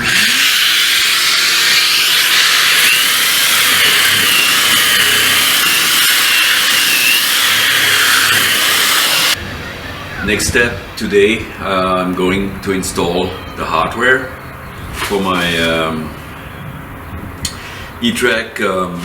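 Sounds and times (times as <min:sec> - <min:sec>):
electric sander on wood: 0:00.0 - 0:09.4.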